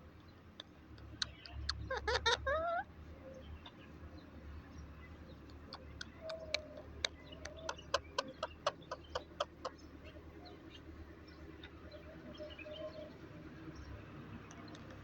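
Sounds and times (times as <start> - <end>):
bird giving sharp calls: 5.8 - 9.8.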